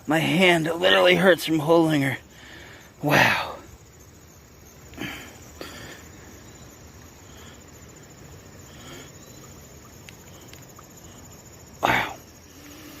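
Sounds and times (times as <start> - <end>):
insects trilling: 0.0 - 13.0
faint clicks: 9.9 - 11.0.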